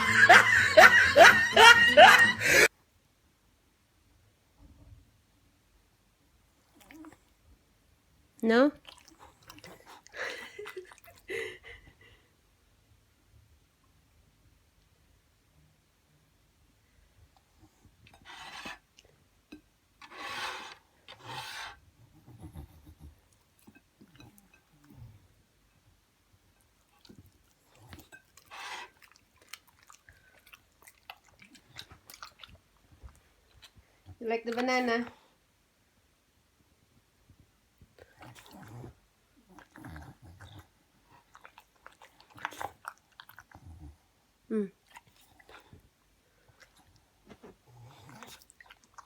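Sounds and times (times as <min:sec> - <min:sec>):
dog smacking and chewing: 0:26.6 - 0:33.9, 0:39.5 - 0:43.7, 0:46.4 - 0:49.0.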